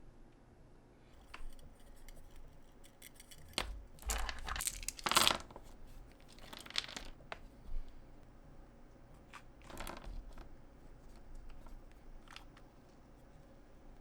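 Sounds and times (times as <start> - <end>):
scratchy tearing and rustling: 1.2 - 7.6.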